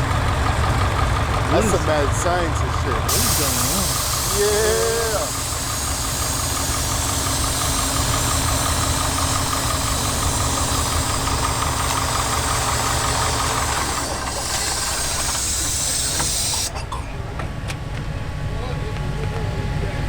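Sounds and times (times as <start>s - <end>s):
air-cooled engine running: 0.0s - 20.0s
loud steady hiss: 3.1s - 16.7s.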